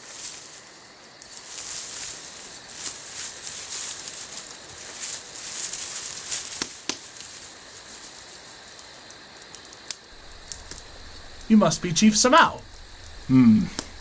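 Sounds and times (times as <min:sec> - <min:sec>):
crackling and rustling: 0:00.0 - 0:08.8, 0:10.2 - 0:14.0
high insect-like hiss: 0:00.0 - 0:14.0
sharp clicks: 0:10.2 - 0:14.0.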